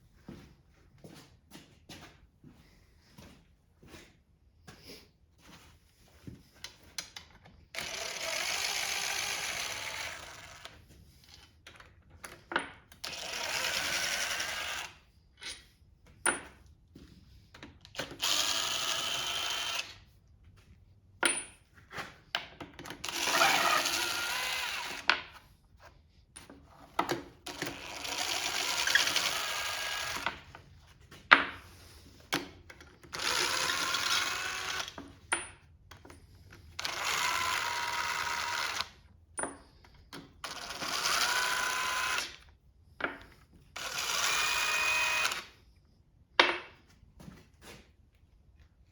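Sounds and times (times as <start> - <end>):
power drill running: 7.7 - 10.9, 13.0 - 15.1, 17.9 - 20.1, 22.9 - 25.2, 27.4 - 30.5, 33.0 - 35.0, 36.7 - 39.0, 40.4 - 42.5, 43.8 - 45.6.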